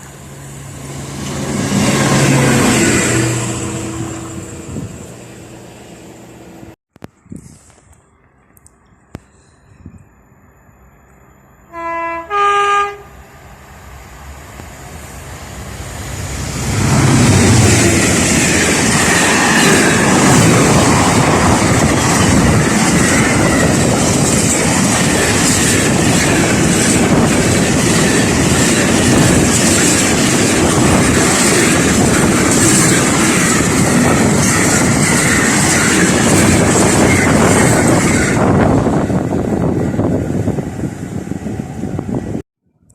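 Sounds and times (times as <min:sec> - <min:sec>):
two-tone train horn: 0:11.6 - 0:13.2
train wheels clattering on rails: 0:16.7 - 0:39.0.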